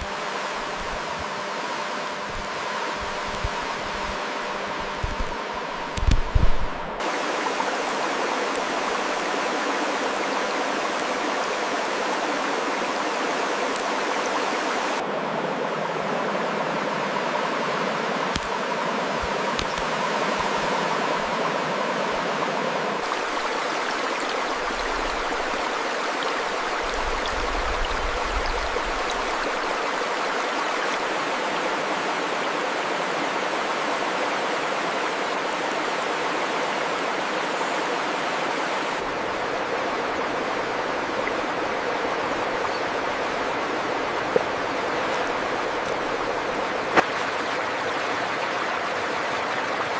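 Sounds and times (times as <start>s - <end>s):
flowing stream rushing: 0.0s - 49.9s.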